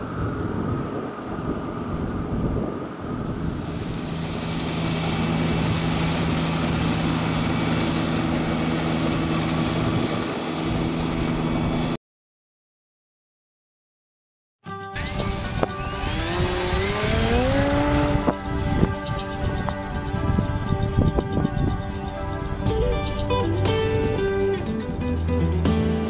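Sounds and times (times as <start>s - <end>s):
model airplane engine running: 0.0s - 12.0s, 15.0s - 23.2s
wind buffeting microphone: 0.0s - 12.0s, 15.0s - 25.2s.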